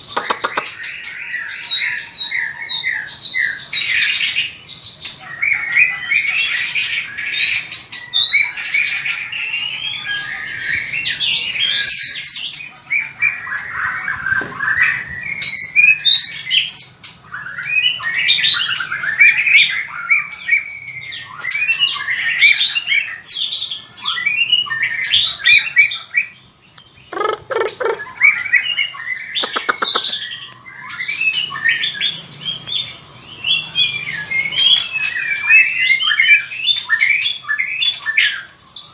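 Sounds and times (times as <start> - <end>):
bird singing whistles and trills: 14.9 - 38.9.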